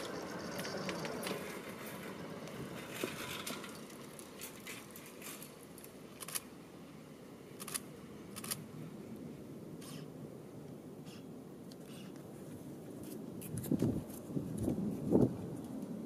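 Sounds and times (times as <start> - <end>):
passing train running: 0.0 - 4.4.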